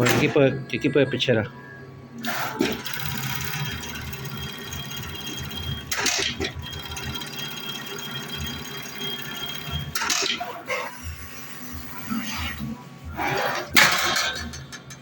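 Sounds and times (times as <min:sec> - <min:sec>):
industrial sewing machine humming: 0:02.2 - 0:12.0.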